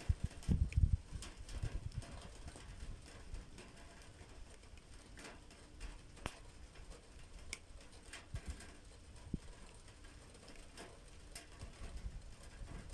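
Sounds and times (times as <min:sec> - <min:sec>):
raindrops tapping on hard surface: 0:00.0 - 0:12.9.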